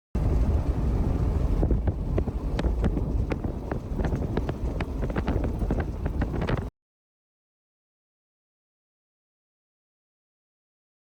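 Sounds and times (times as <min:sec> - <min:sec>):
strong wind buffeting microphone: 0:00.2 - 0:06.7.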